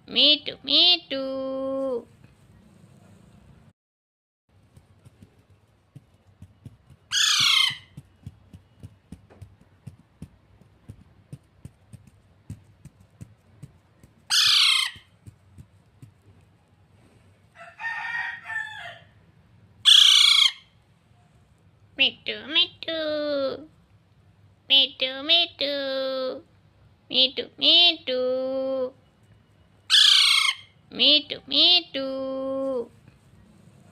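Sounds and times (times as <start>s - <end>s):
parrot calling: 7.1s - 8.0s, 14.2s - 15.2s, 19.8s - 20.8s, 29.9s - 30.8s.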